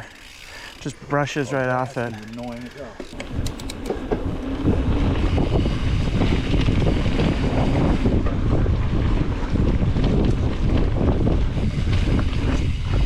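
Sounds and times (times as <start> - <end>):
mountain bike trail noise: 0.0 - 13.0
wind buffeting microphone: 3.2 - 13.0.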